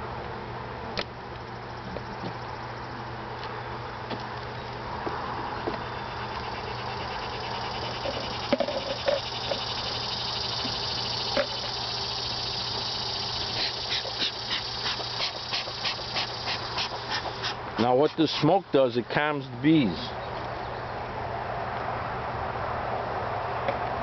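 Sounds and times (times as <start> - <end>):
honeybees humming: 1.4 - 20.3
bee smoker bellows puffing: 6.2 - 18.6.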